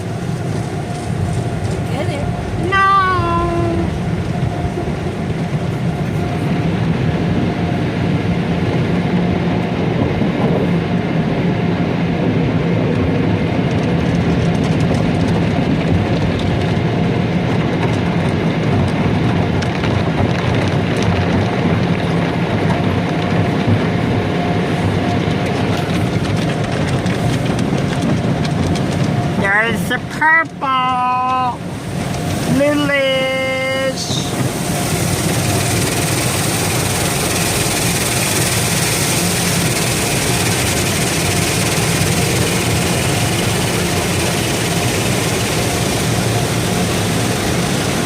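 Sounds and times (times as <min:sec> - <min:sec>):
car wash machinery: 0:00.0 - 0:48.0
spraying water: 0:31.2 - 0:48.0.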